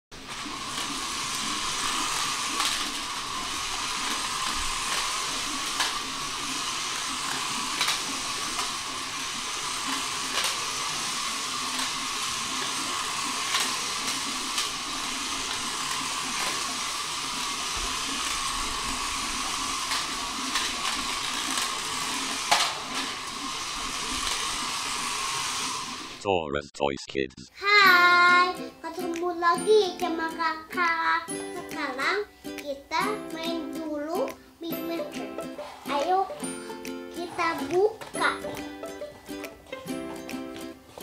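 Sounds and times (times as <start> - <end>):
small electric motor whirring: 0.2 - 26.2.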